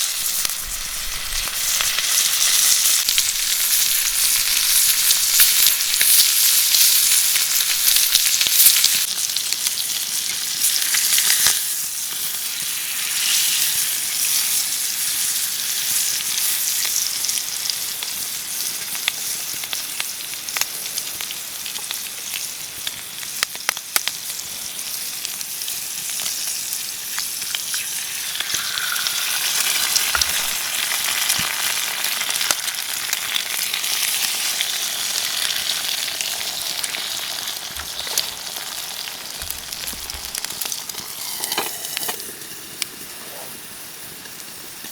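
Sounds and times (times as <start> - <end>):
campfire popping: 0.0 - 6.3, 29.9 - 30.6, 36.0 - 44.9
food sizzling in a pan: 0.0 - 44.9.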